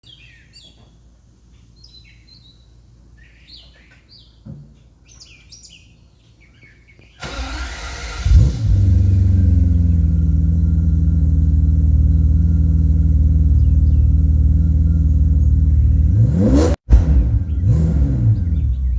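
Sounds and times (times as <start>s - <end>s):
birds chirping: 0.0s - 7.6s, 8.6s - 18.9s
car engine starting and idling: 7.2s - 18.9s.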